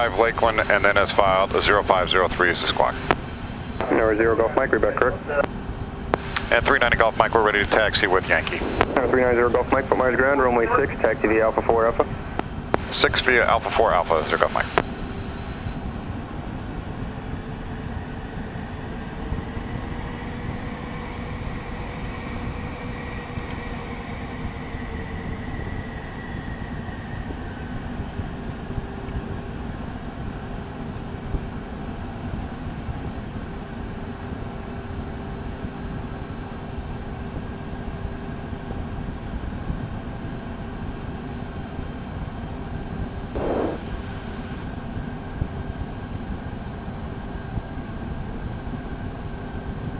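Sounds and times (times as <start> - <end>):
jet engines rumbling and whining: 0.0 - 49.9
rising and falling tone: 43.4 - 44.0
short burst of noise: 43.4 - 44.6.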